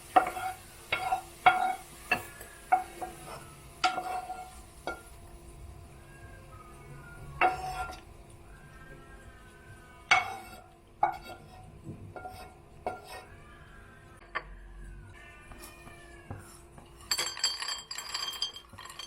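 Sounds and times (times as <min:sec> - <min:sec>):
dishes and cutlery clinking: 0:00.1 - 0:05.2, 0:07.4 - 0:08.1, 0:10.1 - 0:13.3, 0:15.5 - 0:19.0.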